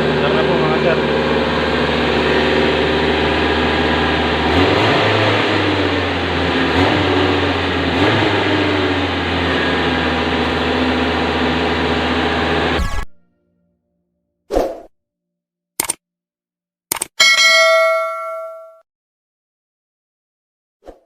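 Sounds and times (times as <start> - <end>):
car engine idling and revving: 0.0 - 13.2.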